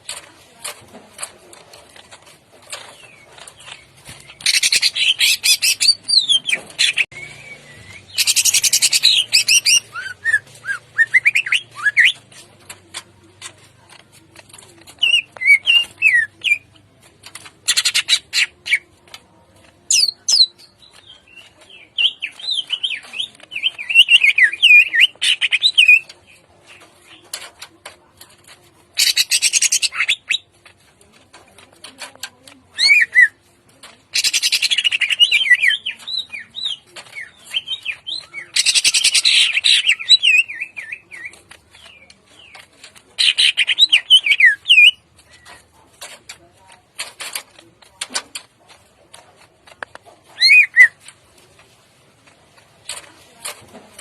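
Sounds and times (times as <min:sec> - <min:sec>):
bird whistled warbling song: 0:04.5 - 0:12.2, 0:50.4 - 0:51.0.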